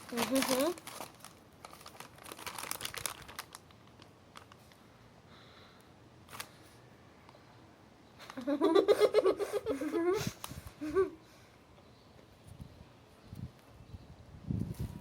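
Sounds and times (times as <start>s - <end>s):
faint crinkling and rustling: 0.0s - 4.9s.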